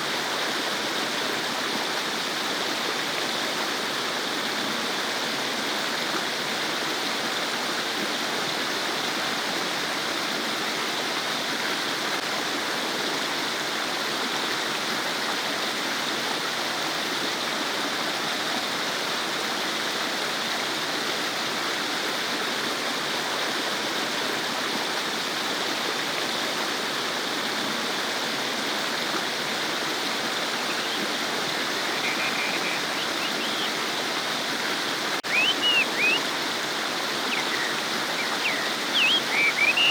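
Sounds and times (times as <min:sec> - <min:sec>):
stream babbling: 0:21.4 - 0:39.9
faint high chirps: 0:30.6 - 0:33.8, 0:35.2 - 0:36.3, 0:37.1 - 0:39.9.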